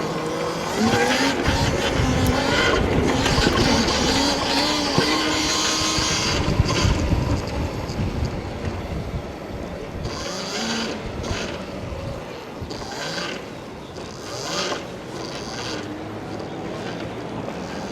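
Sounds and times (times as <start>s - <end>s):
wind buffeting microphone: 0.0s - 14.0s
electric motor whining: 0.0s - 17.9s.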